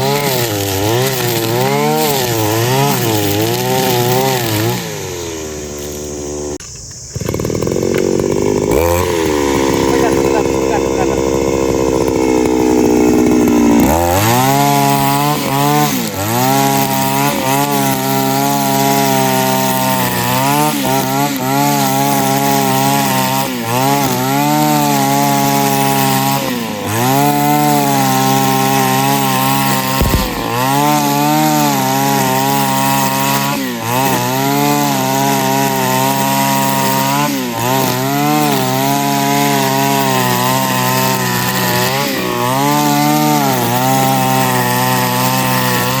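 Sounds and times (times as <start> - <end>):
brush cutter engine running hard: 0.0 - 46.0.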